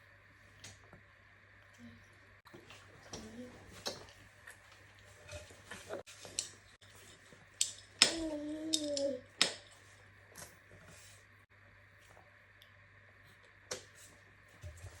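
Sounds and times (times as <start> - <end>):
child vocal sound: 8.0 - 9.3.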